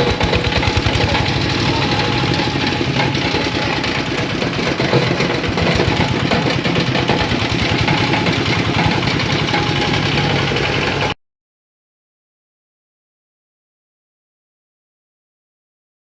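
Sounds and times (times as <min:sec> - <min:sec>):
fabric grinding machine rattling drone: 0:00.0 - 0:11.2.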